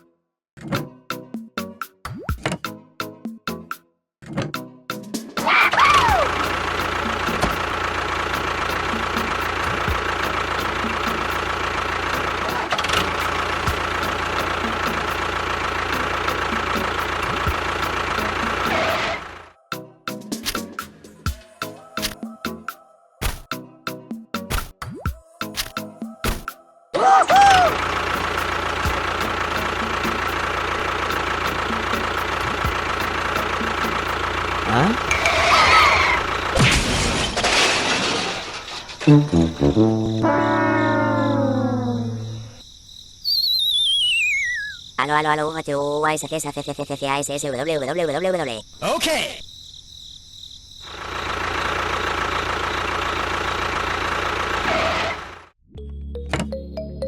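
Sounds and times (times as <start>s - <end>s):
engine idling with high whine: 5.9s - 19.6s, 27.3s - 36.7s, 39.9s - 45.7s, 49.5s - 55.6s
brief falling tone: 39.0s - 42.6s, 43.3s - 44.8s.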